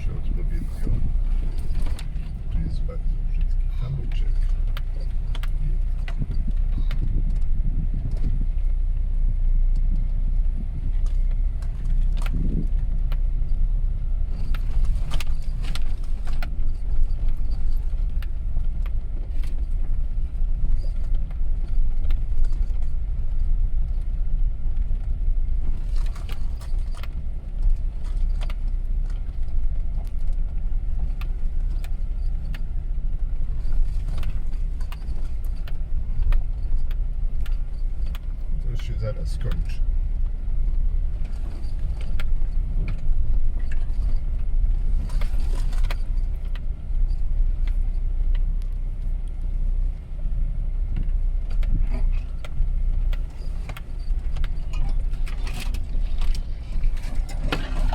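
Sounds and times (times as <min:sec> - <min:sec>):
engine and tyre rumble: 0:00.0 - 0:57.9
car rattles and knocks: 0:24.8 - 0:57.9.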